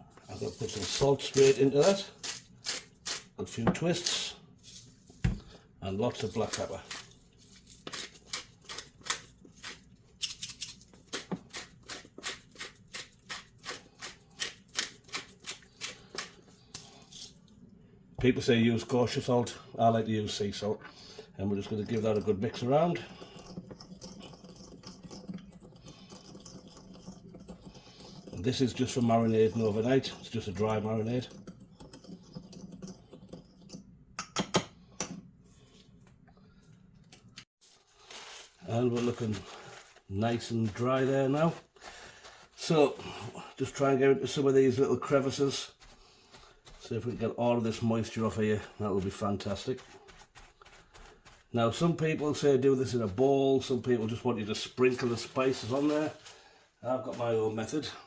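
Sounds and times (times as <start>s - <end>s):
pepper grinder grinding: 0.3s - 4.8s, 6.2s - 17.4s.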